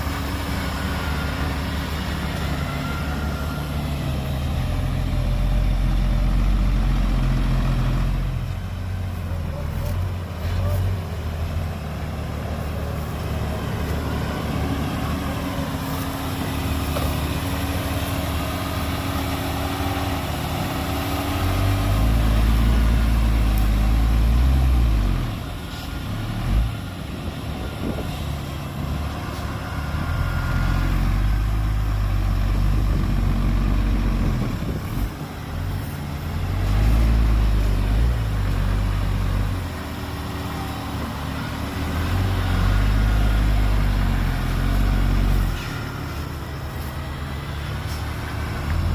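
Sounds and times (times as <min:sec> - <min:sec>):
diesel machinery engine revving: 0:00.0 - 0:48.9.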